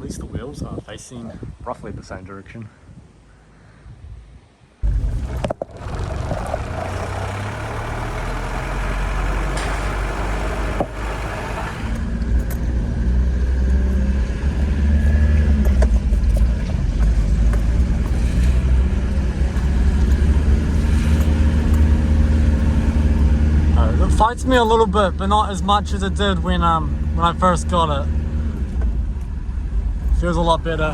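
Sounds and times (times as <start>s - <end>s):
truck engine running: 4.8s - 13.0s, 16.8s - 30.8s.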